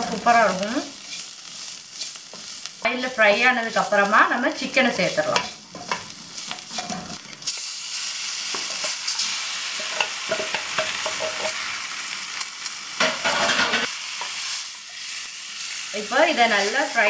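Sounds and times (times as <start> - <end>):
chicken frying in hot fat: 0.0 - 17.0
spices sizzling in butter: 0.0 - 17.0
wooden spatula scraping pan: 4.9 - 7.2.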